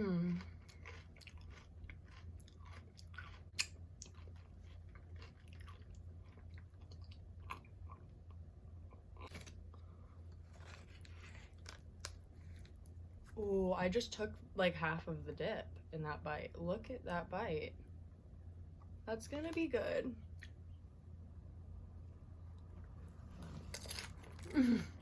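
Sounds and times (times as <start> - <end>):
steady low hum: 0.0 - 25.0
chewing and crunching chip: 0.1 - 13.4, 23.4 - 25.0.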